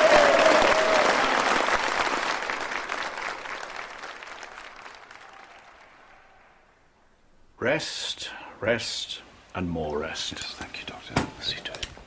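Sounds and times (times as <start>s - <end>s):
applause from a group: 0.0s - 6.5s.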